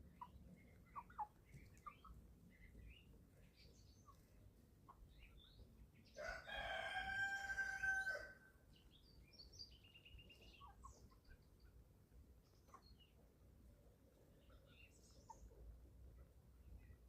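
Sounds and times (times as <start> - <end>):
high chirps and peeps: 0.0 - 6.2, 8.7 - 13.2, 14.1 - 17.0
rooster crowing: 6.2 - 8.5.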